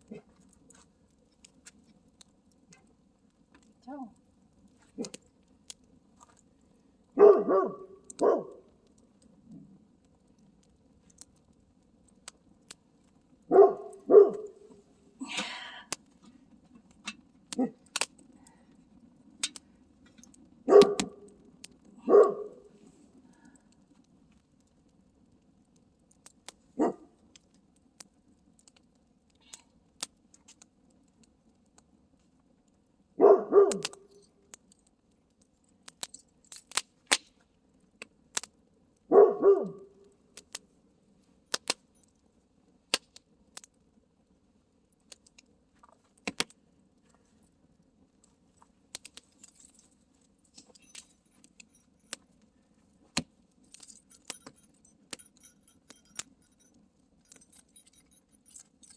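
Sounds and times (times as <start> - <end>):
campfire crackling and popping: 0.0 - 39.2, 40.0 - 58.9
dog barking: 7.2 - 8.7, 13.5 - 14.7, 20.7 - 21.3, 22.0 - 22.7, 26.8 - 27.1, 33.2 - 34.1, 39.1 - 40.0.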